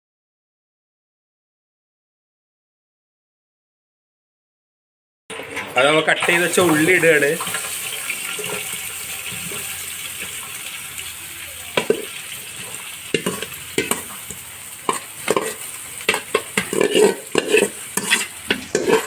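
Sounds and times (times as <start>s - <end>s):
onions sizzling in a pot: 6.2s - 19.0s
ladle scraping a metal pot: 11.8s - 19.0s.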